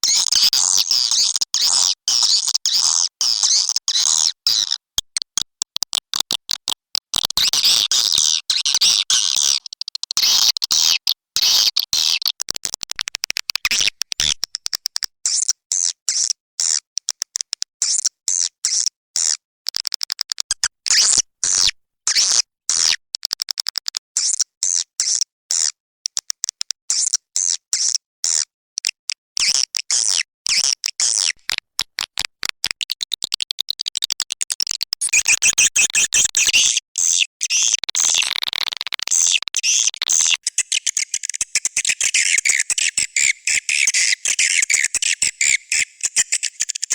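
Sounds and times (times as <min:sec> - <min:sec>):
swiftlet twittering chirps: 0:35.0 - 0:36.8, 0:39.2 - 0:46.9.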